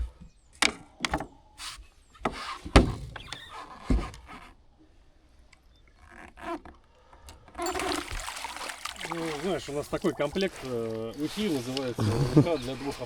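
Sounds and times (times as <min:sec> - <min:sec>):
knocks and thumps: 0:02.2 - 0:04.2
scraping rustle: 0:09.4 - 0:13.0.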